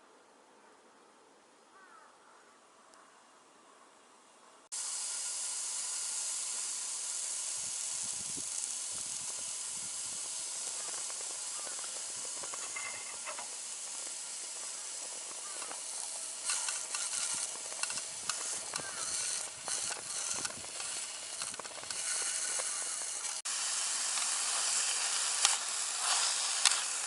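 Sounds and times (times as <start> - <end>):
faint insect chirping: 1.6 - 23.4
food sizzling in a pan: 4.7 - 27.0.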